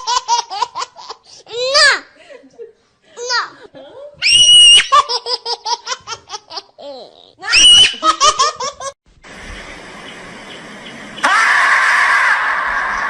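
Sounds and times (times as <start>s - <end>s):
high-pitched laughter: 6.2s - 9.0s
steady hiss: 9.1s - 11.3s.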